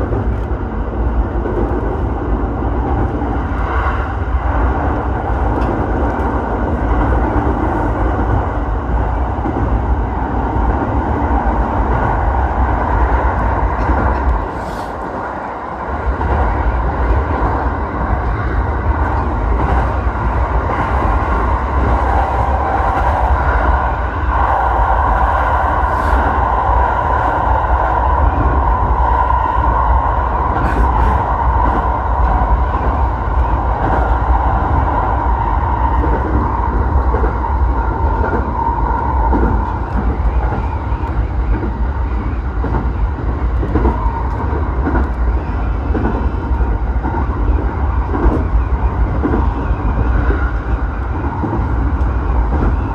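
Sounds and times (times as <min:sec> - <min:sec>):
electric train hum: 0:00.0 - 0:52.9
train wheels rumbling on rail: 0:00.0 - 0:52.9.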